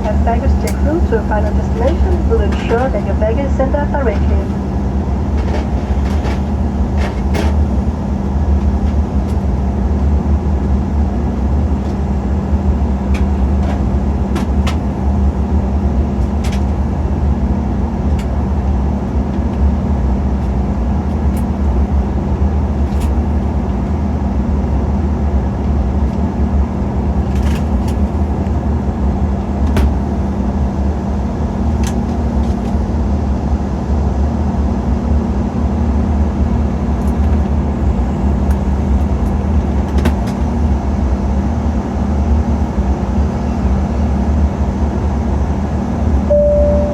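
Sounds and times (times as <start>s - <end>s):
steady hum: 0.0s - 6.9s, 46.3s - 46.9s
airliner cabin engine drone: 0.0s - 46.9s.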